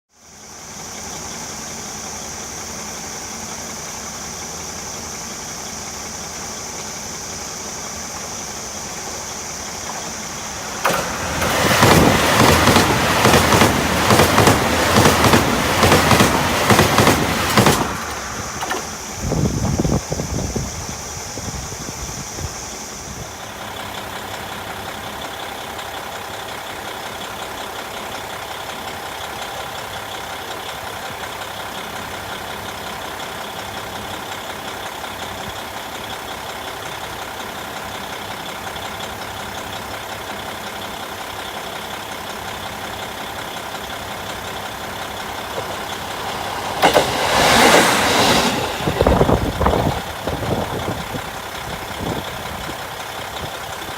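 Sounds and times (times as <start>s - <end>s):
diesel railcar engine idling: 0.1s - 53.9s
loud rushing noise: 10.0s - 21.1s, 44.7s - 51.2s
high thin whine: 44.4s - 51.2s.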